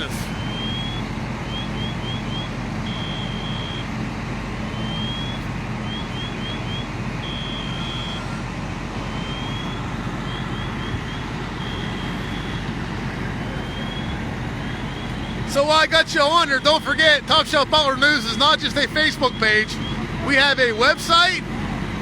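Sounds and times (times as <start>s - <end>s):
engines droning: 0.0s - 22.0s
electronic alarm sweeps and chirps: 4.8s - 8.4s, 9.1s - 12.6s.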